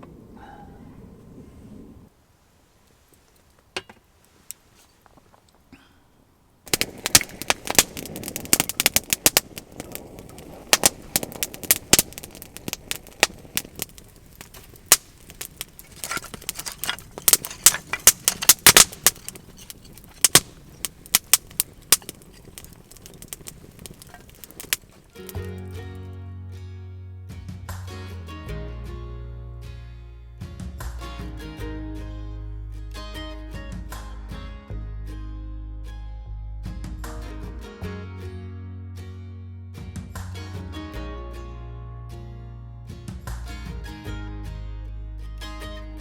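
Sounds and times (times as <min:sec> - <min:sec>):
wood fire crackling and popping: 0:06.6 - 0:26.0
music: 0:25.2 - 0:46.0.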